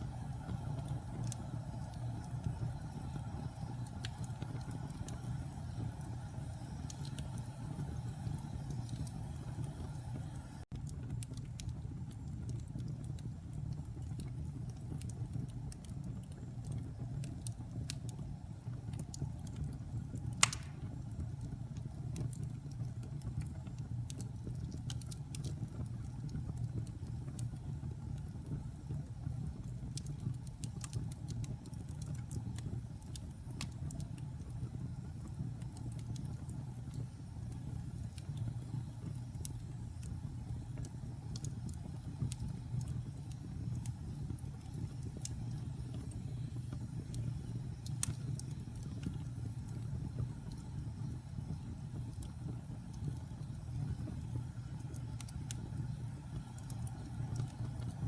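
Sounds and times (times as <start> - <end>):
fire crackles: 0.0 - 58.0
fire flames rumbling: 0.0 - 58.0
loud pop from fire: 20.4 - 21.0.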